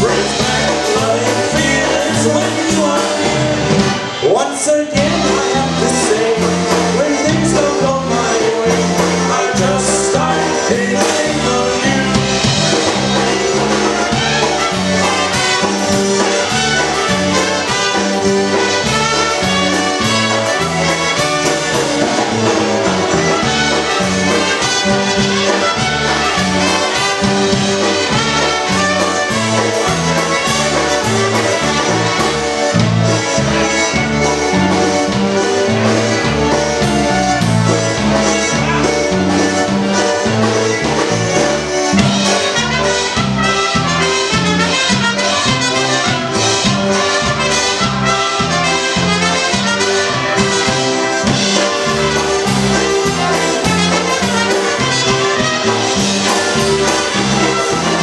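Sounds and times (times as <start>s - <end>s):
oom-pah bass beat: 0.0s - 4.0s, 5.0s - 58.0s
polka band playing: 0.0s - 58.0s
trombone: 0.0s - 58.0s
trumpet: 0.0s - 58.0s.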